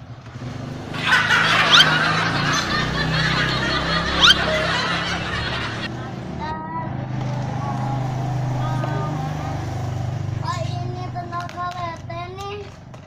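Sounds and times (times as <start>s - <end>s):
short rising squeaks: 1.0s - 5.9s
laughter: 1.0s - 6.0s.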